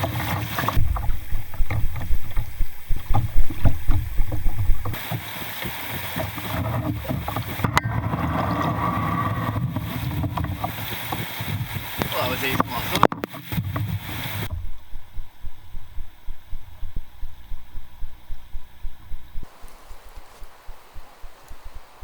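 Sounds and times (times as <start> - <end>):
wind buffeting microphone: 0.0 - 5.1, 6.4 - 22.0
rushing river water: 0.0 - 14.7.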